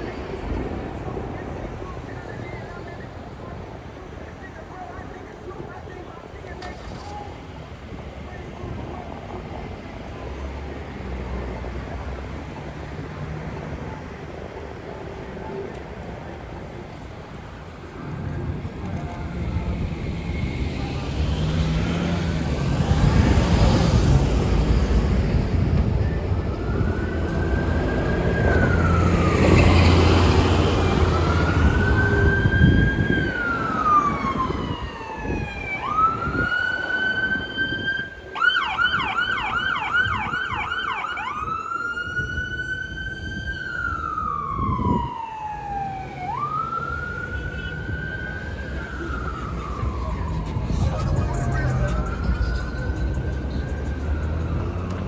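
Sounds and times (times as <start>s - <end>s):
heavy traffic rumble: 0.0s - 55.0s
emergency siren wailing and yelping: 21.1s - 55.0s.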